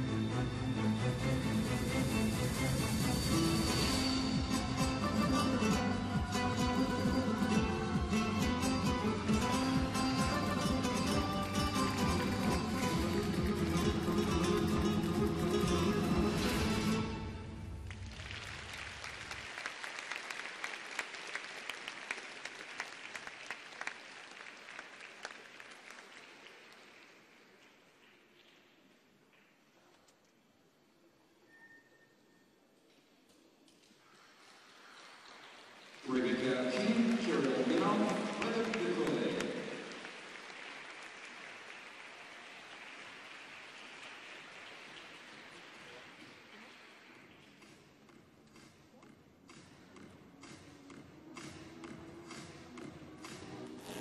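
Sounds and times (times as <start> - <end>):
audience applauding: 17.8 - 28.5, 34.0 - 47.6.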